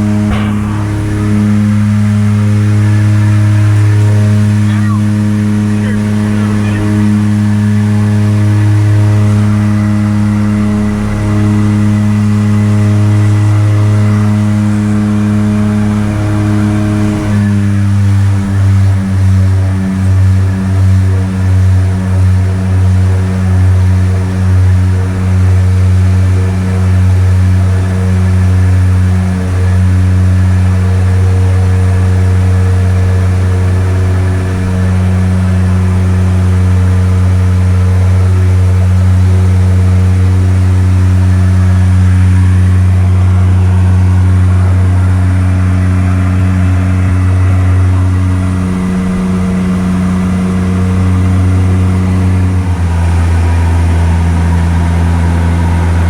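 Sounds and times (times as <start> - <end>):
loud engine drone: 0.0 - 56.0.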